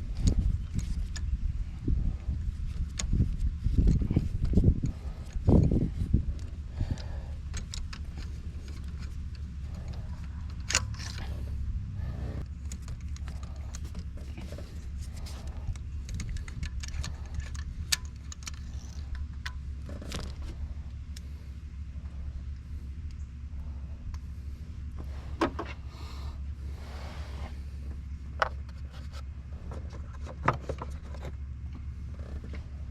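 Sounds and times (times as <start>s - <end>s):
steady low hum: 0.0s - 32.9s
metallic clicks and clinks of tools: 16.0s - 19.6s.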